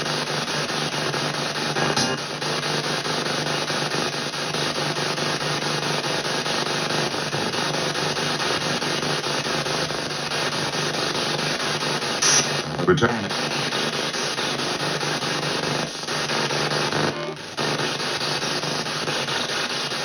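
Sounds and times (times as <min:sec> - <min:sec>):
chopped radio static: 0:01.5 - 0:02.8, 0:11.7 - 0:20.0.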